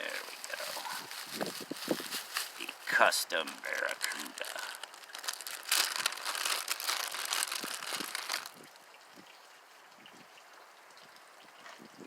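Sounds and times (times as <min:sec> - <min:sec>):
packing material crinkling: 0:00.0 - 0:08.7.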